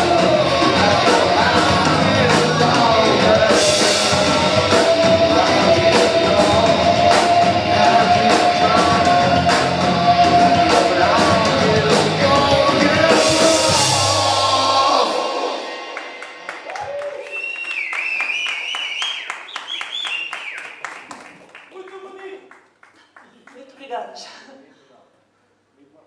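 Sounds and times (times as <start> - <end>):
guitars: 0.0 - 16.3
person singing: 0.0 - 17.3
drums: 0.0 - 21.5.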